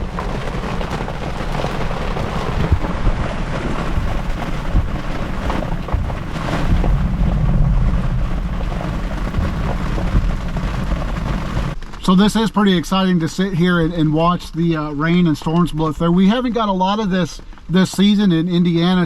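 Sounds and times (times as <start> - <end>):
heavy rain on car roof: 0.0 - 12.2.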